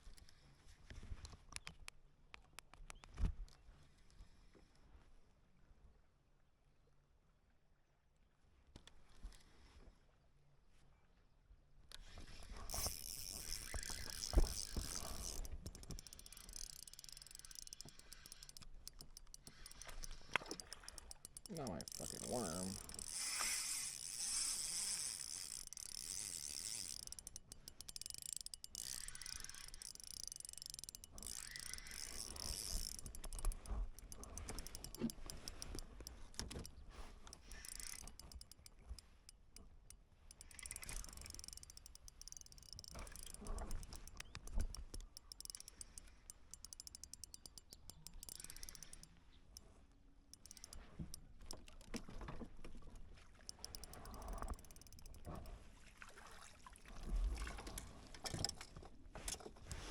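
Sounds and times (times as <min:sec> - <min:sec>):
fishing reel clicking whir: 0:11.9 - 0:49.7, 0:50.3 - 0:52.3, 0:52.9 - 0:55.5, 0:57.6 - 0:58.7.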